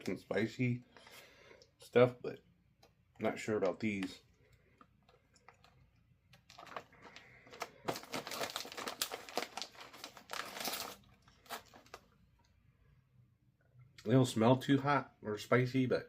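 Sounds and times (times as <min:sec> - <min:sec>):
chip bag crinkling: 0:05.1 - 0:12.1.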